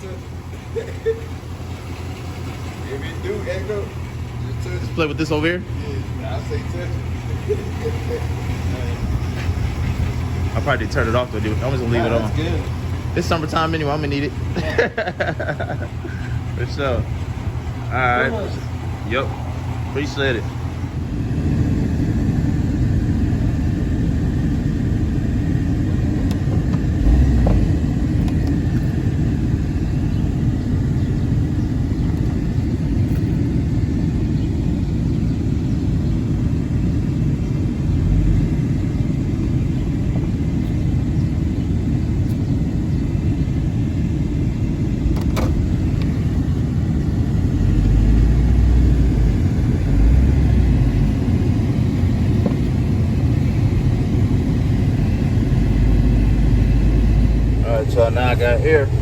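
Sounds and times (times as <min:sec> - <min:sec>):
car engine low rumble: 0:00.0 - 0:59.0.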